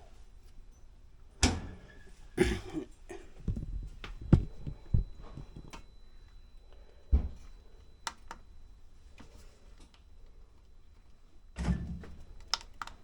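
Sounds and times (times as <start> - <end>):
knocks and thumps: 3.4 - 5.8.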